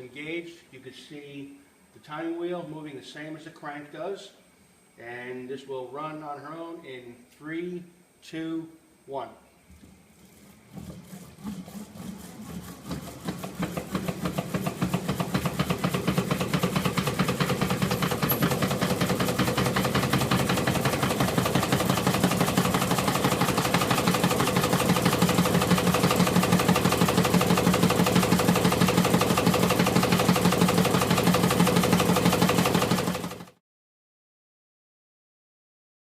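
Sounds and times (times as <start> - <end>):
steady engine hum: 10.2 - 33.3
engine clattering mechanical clicks: 13.2 - 33.5.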